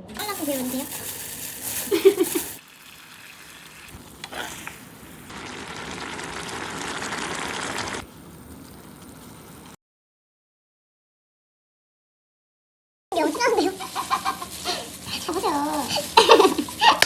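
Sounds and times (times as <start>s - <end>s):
octopus sizzling in a frying pan: 0.1s - 9.8s, 13.2s - 17.0s.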